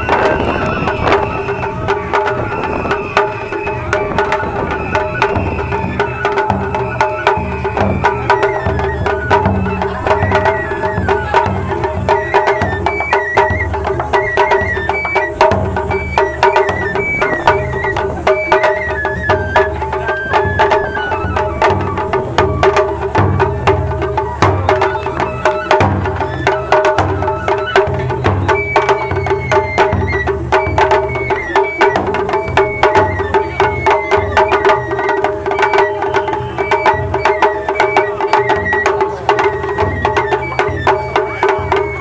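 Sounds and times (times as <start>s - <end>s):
high flute melody: 0.0s - 42.0s
steady drumming: 0.0s - 42.0s.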